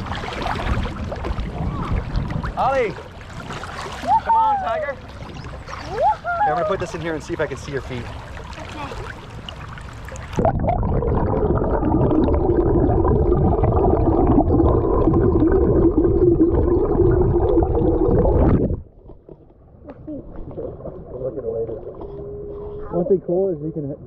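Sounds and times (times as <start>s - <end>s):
river trickling faintly: 0.0s - 12.8s
muffled underwater river rushing: 0.0s - 23.4s.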